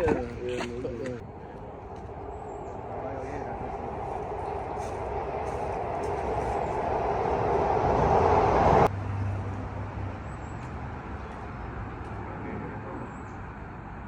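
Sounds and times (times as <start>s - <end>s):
steady low hum: 0.0s - 8.9s
car road and engine noise: 0.0s - 14.0s.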